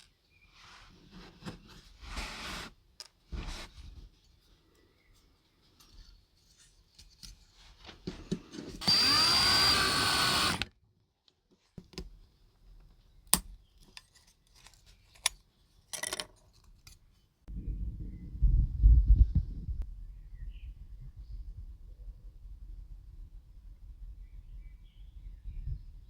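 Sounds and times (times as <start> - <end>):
electric drill whining: 8.8 - 10.7.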